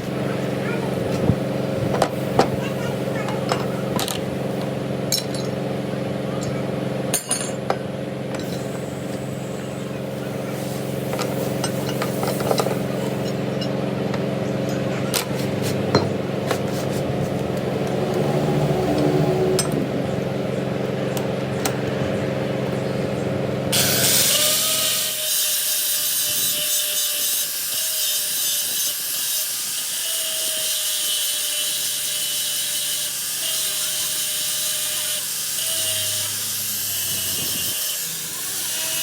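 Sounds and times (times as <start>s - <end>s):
power tool humming: 16.2s - 20.4s, 23.7s - 39.0s.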